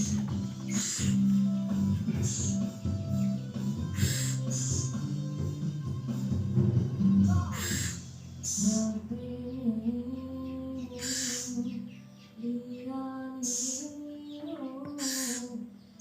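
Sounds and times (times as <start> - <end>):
owl chick hissing calls: 0.0 - 1.3, 2.0 - 5.2, 7.4 - 8.8, 11.0 - 11.8, 13.4 - 14.0, 14.9 - 15.6
background music with gliding melody: 0.0 - 16.0.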